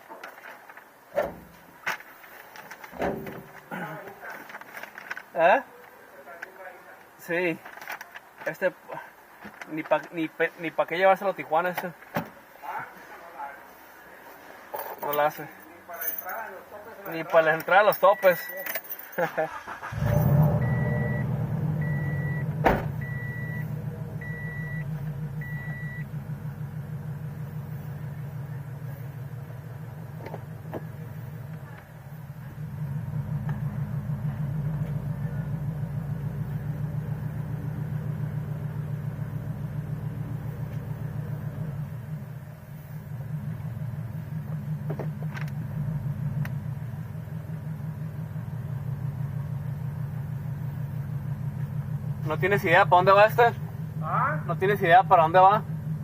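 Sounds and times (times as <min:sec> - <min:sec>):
car engine idling: 0:00.0 - 0:08.5, 0:19.4 - 0:56.0
car warning chime beeping: 0:18.0 - 0:18.6, 0:20.6 - 0:26.2.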